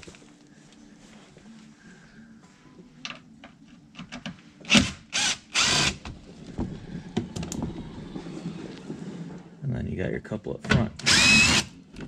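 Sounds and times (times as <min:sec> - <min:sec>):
power tool bursts: 0:11.0 - 0:11.8.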